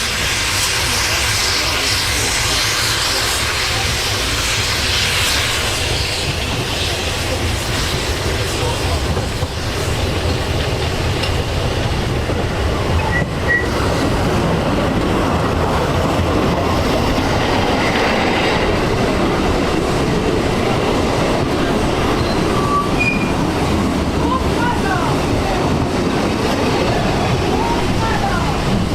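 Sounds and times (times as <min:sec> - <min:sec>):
train wheels rumbling on rails: 0:00.0 - 0:28.9
wheels squealing: 0:13.0 - 0:13.9, 0:22.0 - 0:23.5.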